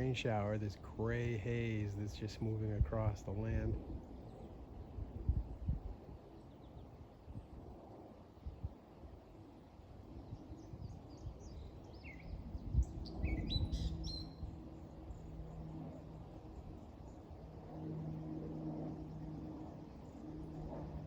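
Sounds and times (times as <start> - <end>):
low rumbling outdoor background: 0.0 - 21.0
steady low hum: 0.0 - 21.0
small birds chirping: 10.2 - 17.5.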